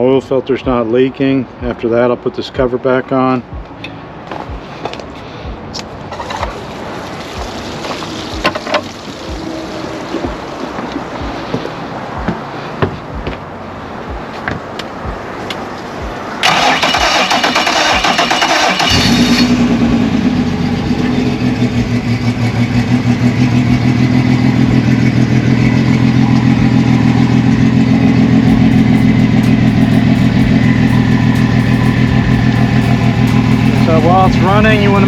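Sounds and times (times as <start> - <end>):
outboard starter cranking: 16.4 - 19.4
outboard engine idling: 19.6 - 35.0.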